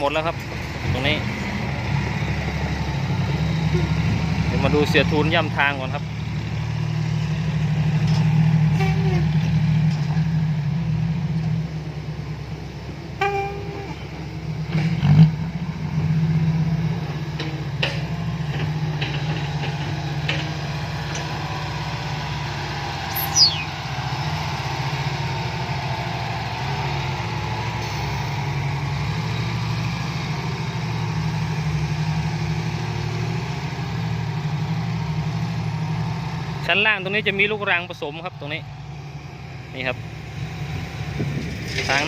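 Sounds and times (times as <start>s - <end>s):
heavy diesel engine running: 0.0s - 42.0s
falling whistle: 23.1s - 23.8s.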